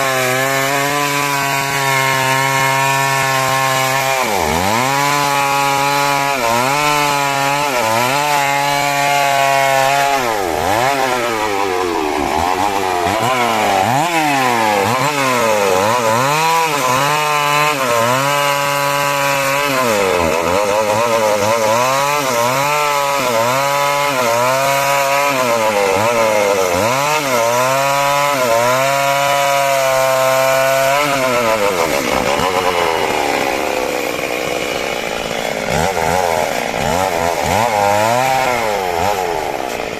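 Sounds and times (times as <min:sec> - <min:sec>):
chainsaw cutting timber: 0:00.0 - 0:39.9.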